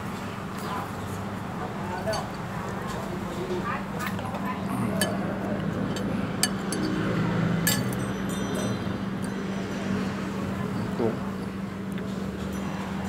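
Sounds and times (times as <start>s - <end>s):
spoon and fork clinking on dish: 5.0s - 7.0s, 7.6s - 9.5s.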